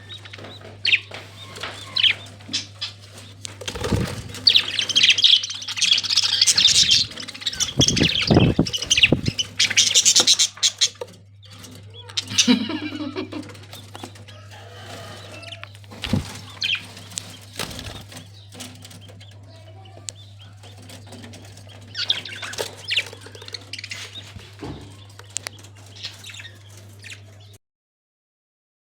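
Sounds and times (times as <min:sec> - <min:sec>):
steady low hum: 0:00.0 - 0:27.6
parrot wing flaps: 0:03.6 - 0:04.9, 0:15.9 - 0:16.8.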